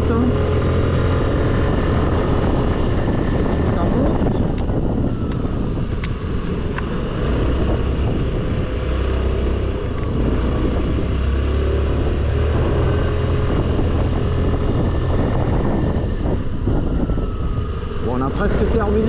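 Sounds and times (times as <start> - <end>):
scooter engine running: 0.0 - 8.8.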